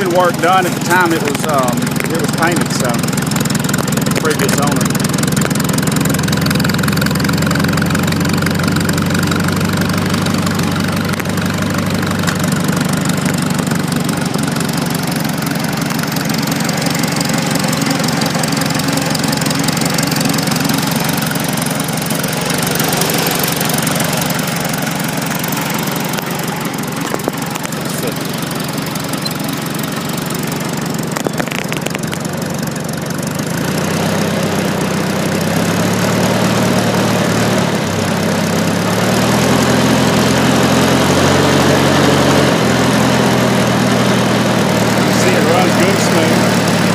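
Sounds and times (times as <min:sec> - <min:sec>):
person talking: 0:00.0 - 0:03.1, 0:04.2 - 0:05.0, 0:27.6 - 0:28.4, 0:45.0 - 0:46.5
tractor engine idling: 0:00.0 - 0:46.9.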